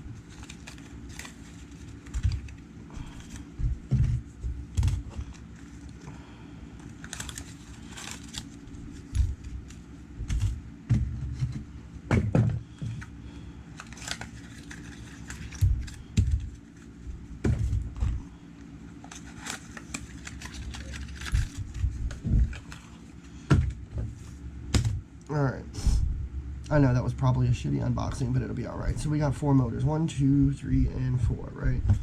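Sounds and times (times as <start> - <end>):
packaging rustling and crinkling: 0.0 - 6.1, 6.8 - 10.6, 13.7 - 18.3, 18.9 - 23.2.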